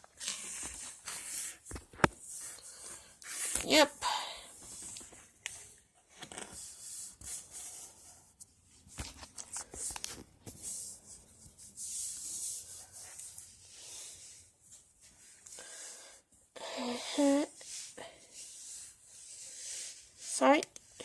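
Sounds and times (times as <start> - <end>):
rubbing and rustling of plastic: 0.0 - 16.1.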